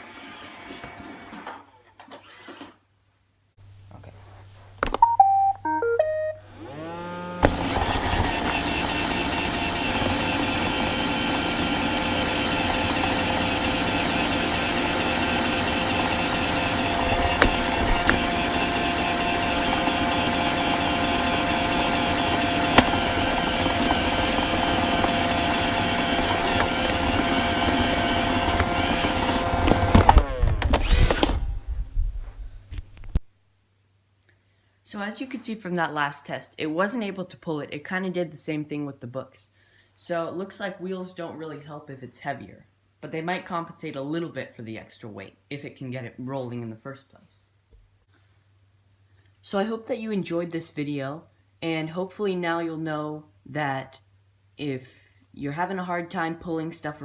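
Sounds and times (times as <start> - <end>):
vacuum motor whirring: 0.0 - 1.6, 6.4 - 31.7
robot vacuum start-up beeps: 5.0 - 7.0
motor winding down whine: 6.4 - 31.7.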